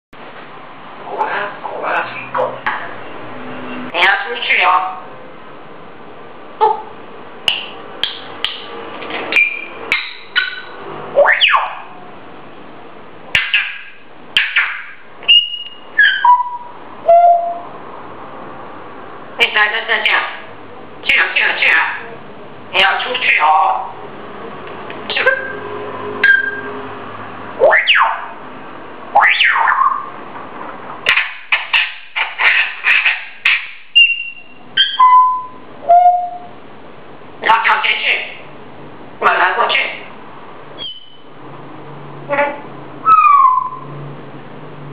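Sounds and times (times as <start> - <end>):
parrot screeching: 9.3 - 11.9, 13.4 - 17.7, 26.2 - 26.7, 27.6 - 28.4, 29.1 - 30.2, 31.1 - 36.5, 40.8 - 41.3, 43.0 - 43.9
parrot whistling: 9.3 - 11.9, 13.4 - 17.7, 26.2 - 26.7, 27.6 - 28.3, 29.1 - 30.1, 31.1 - 36.6, 40.8 - 41.3, 43.0 - 44.0.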